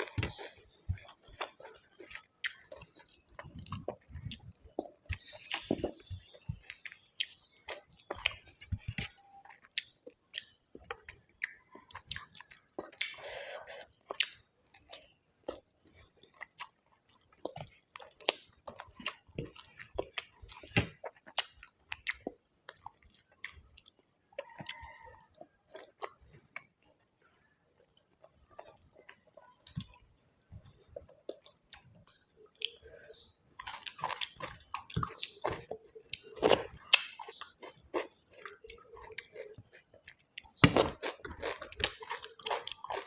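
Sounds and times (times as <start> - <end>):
person chewing food: 0.0 - 43.0.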